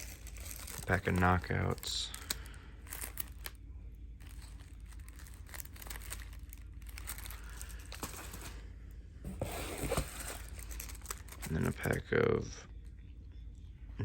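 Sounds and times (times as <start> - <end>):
wrappers crinkling and rustling: 0.0 - 3.6, 4.2 - 8.6, 9.4 - 12.2.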